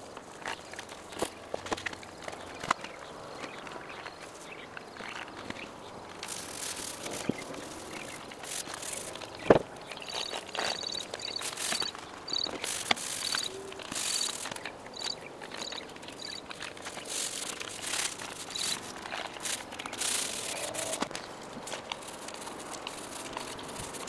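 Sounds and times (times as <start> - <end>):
paint roller rasping on metal: 6.2 - 24.0.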